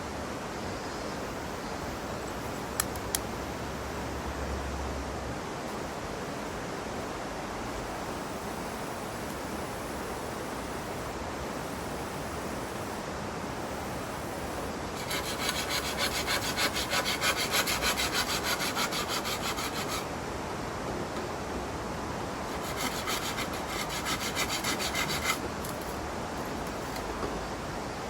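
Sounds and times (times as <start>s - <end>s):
steady outdoor hiss: 0.0s - 28.0s
hand saw cutting wood: 15.0s - 20.1s, 22.5s - 25.4s.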